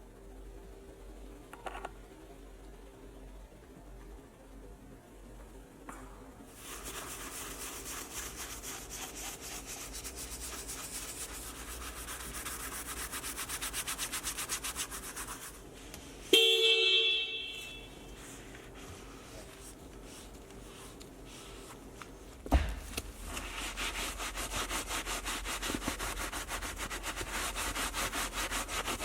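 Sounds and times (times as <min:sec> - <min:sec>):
brush scrubbing a surface: 0:06.6 - 0:16.3, 0:17.9 - 0:22.4, 0:23.1 - 0:29.0
car horn blast: 0:16.3 - 0:17.9.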